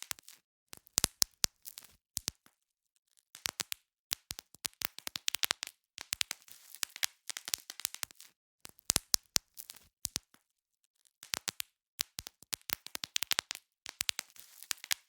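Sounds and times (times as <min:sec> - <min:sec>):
bubble wrap popping: 0:03.4 - 0:10.4, 0:11.1 - 0:15.0.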